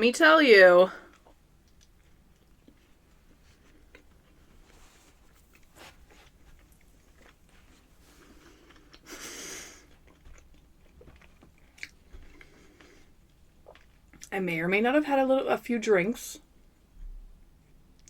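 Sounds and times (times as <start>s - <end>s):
chewing with wet mouth clicks: 1.1s - 4.5s, 9.8s - 14.4s.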